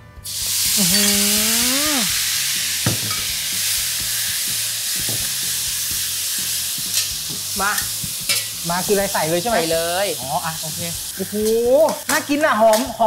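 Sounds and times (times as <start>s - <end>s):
liver sizzling in hot oil: 0.2s - 13.0s
metal spatula scraping a wok: 7.8s - 8.6s.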